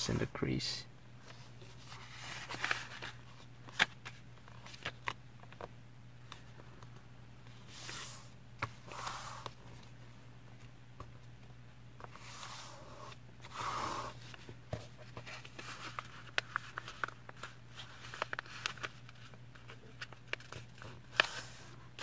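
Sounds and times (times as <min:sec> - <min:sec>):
paper crinkling: 0:01.6 - 0:05.6, 0:15.1 - 0:22.0
paper sliding swishes: 0:07.6 - 0:09.6, 0:12.0 - 0:14.2.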